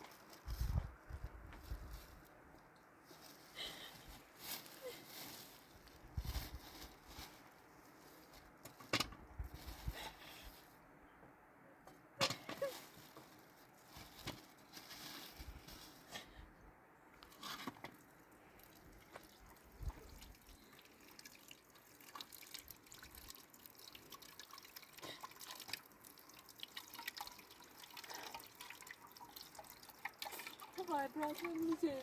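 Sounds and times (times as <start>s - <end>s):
water dripping and trickling: 17.9s - 32.0s.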